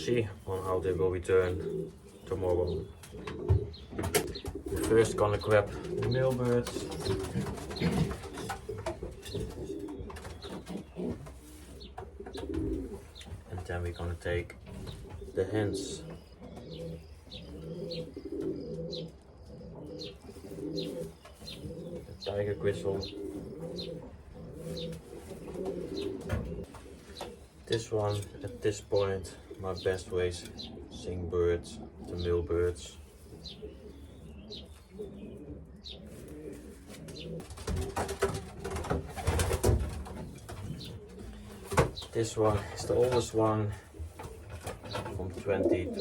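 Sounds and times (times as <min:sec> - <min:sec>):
pigeons cooing: 0:00.0 - 0:46.0
rustling and knocking: 0:05.8 - 0:13.9, 0:24.7 - 0:27.5, 0:37.0 - 0:45.5.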